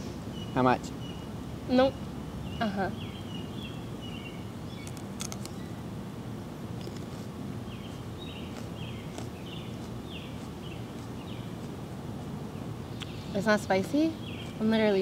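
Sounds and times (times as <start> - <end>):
bird chirping: 0.0 - 5.9, 6.8 - 11.7, 12.5 - 15.0
low outdoor rumble: 0.0 - 15.0
sharp clicks: 4.8 - 5.6.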